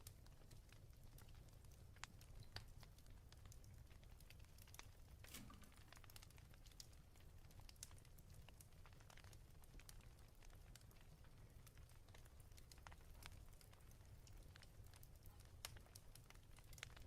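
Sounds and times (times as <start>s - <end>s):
fireplace crackling: 0.0s - 17.0s.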